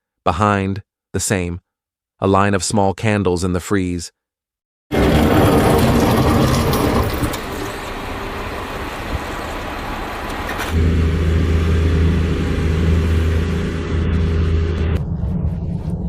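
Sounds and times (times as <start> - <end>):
dense road traffic: 4.9 - 14.6
low engine drone: 4.9 - 16.0.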